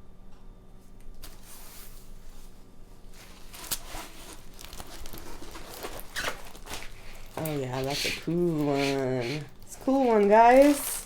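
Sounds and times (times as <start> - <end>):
plastic packaging crinkling and tearing: 3.1 - 11.0.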